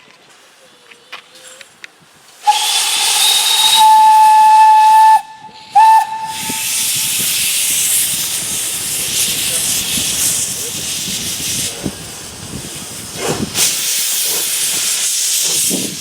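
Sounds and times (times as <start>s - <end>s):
steam hissing: 2.2s - 16.0s
steam locomotive whistle: 2.4s - 8.2s.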